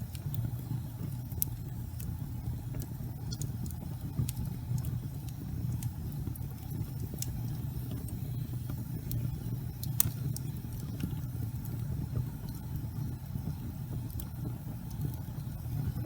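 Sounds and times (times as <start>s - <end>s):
fire crackles: 0.0s - 16.0s
gas fire flames rumbling: 0.0s - 16.0s.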